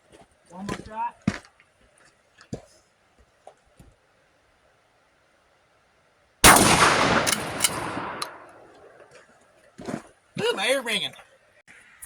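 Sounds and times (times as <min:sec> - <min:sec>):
shotgun blast with echo: 0:06.4 - 0:08.9.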